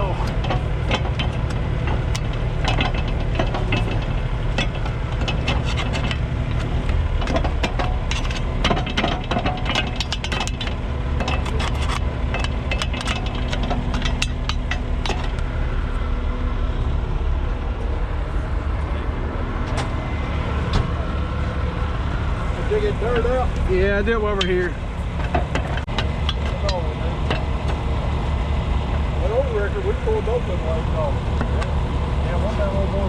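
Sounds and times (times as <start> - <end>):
spades scraping and clanking: 0.0 - 16.0, 22.4 - 28.0
truck engine running: 0.0 - 33.0.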